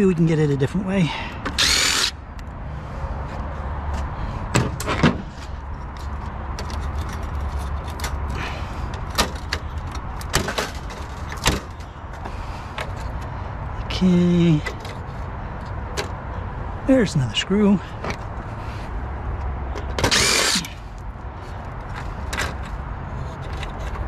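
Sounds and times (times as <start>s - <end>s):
tools and metal parts clicking: 5.7s - 12.2s, 14.6s - 16.2s, 19.7s - 20.8s, 21.6s - 24.0s.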